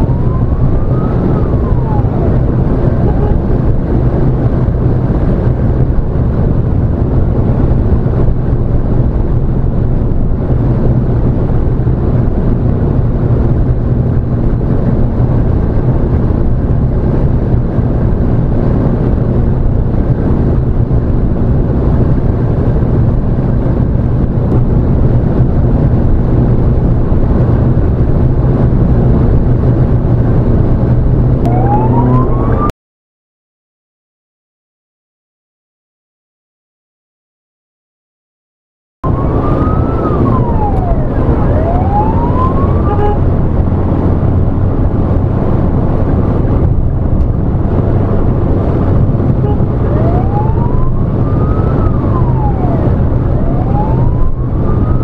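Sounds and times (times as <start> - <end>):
siren wail: 0.0 - 3.8, 31.4 - 32.7, 39.0 - 43.6, 48.7 - 55.0
vehicle engine and road drone: 0.0 - 32.7, 39.0 - 55.0.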